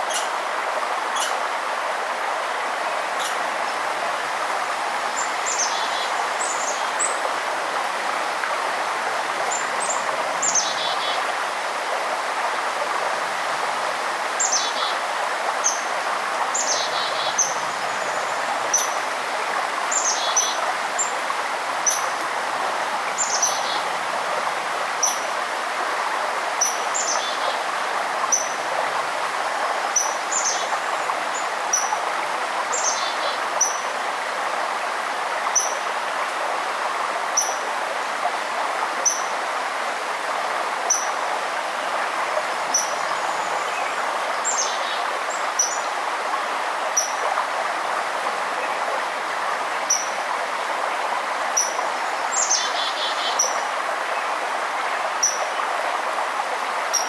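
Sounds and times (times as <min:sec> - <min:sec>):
stream flowing: 0:00.0 - 0:57.0
songbirds chirping: 0:51.6 - 0:54.3.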